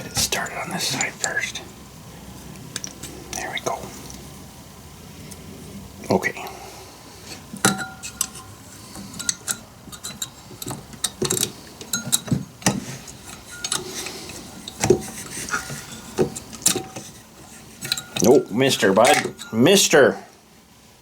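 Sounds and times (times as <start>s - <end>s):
small metallic clicks and clinks: 7.6s - 12.4s, 13.1s - 14.9s, 17.8s - 19.6s.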